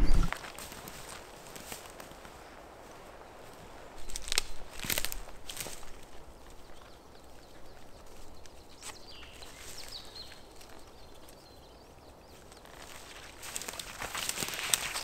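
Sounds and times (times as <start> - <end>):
small bird chirping: 0.0 - 0.3.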